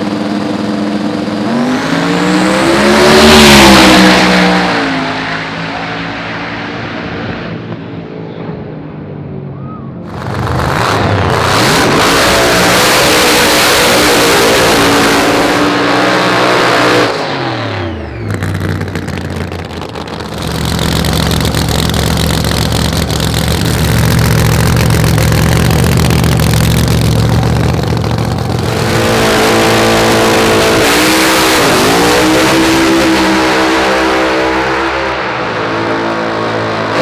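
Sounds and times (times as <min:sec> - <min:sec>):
higher-pitched racing engine: 0:00.0 - 0:08.6, 0:10.0 - 0:37.0
loud racing car engine: 0:00.0 - 0:37.0.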